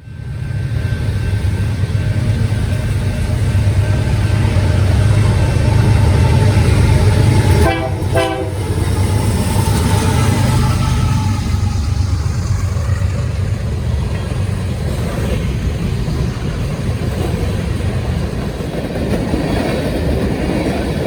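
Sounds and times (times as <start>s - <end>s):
train rumbling past: 0.0s - 21.0s
train horn toot: 7.5s - 8.9s.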